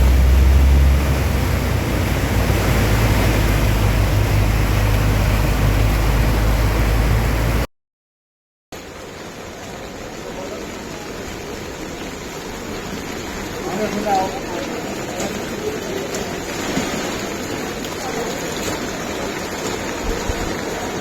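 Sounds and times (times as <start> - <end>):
deep rumble: 0.0 - 7.7
heavy rain pouring: 0.0 - 7.7, 8.8 - 21.0.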